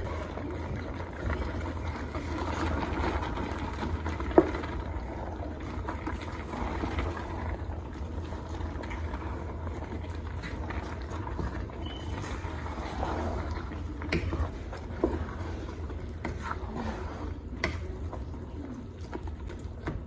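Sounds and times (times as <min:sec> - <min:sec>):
soup pot cooking hum: 0:00.0 - 0:20.0.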